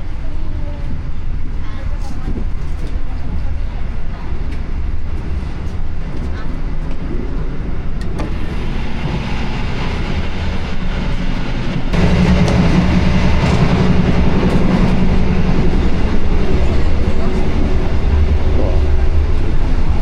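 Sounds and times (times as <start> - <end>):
train wheels clattering on rails: 0.0 - 20.0.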